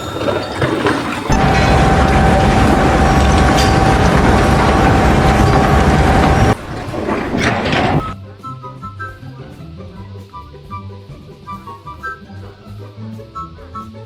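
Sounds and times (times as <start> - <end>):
loud mechanical rattling and whine: 1.1 - 8.2
music: 8.1 - 14.0.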